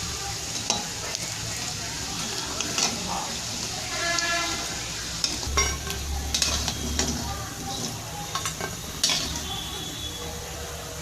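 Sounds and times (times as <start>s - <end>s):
fritters sizzling in hot oil: 0.0s - 11.0s
utensil scraping a pan: 2.2s - 9.6s.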